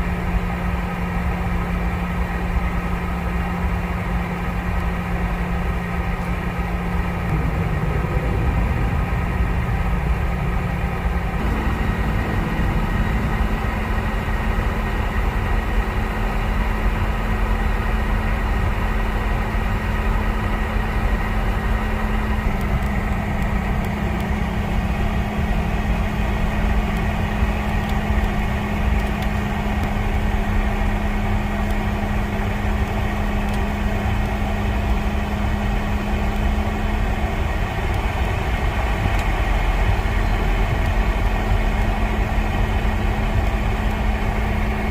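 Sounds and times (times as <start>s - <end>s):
jet engines idling: 0.0s - 44.9s
cabin air hum: 7.0s - 16.8s.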